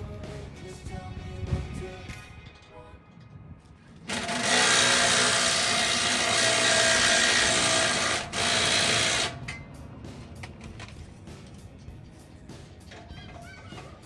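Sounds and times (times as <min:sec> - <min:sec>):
power tool whining: 0:04.0 - 0:09.5.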